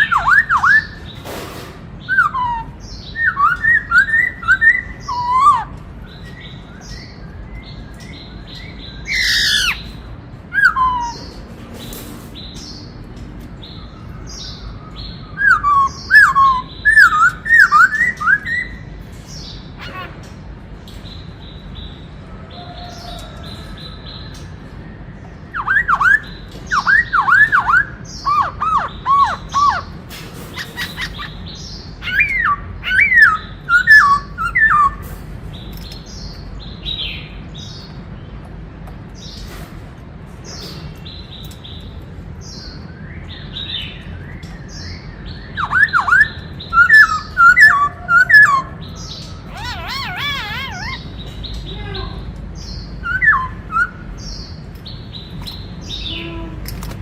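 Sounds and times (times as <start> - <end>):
bird singing whistled notes: 2.1 - 11.4, 13.7 - 19.0, 30.6 - 35.0, 42.4 - 51.7, 52.6 - 54.6.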